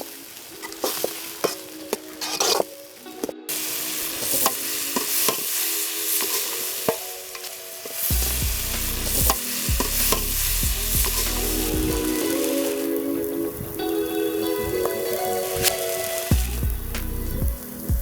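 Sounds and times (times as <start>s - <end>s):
chicken sizzling in a pan: 0.0s - 18.0s
low rumble: 8.1s - 12.2s, 16.3s - 18.0s.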